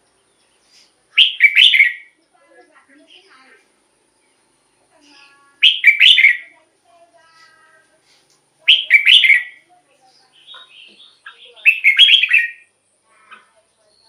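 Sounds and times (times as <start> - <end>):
bird warbling song: 0.0 - 2.1, 5.0 - 6.5, 8.7 - 14.0.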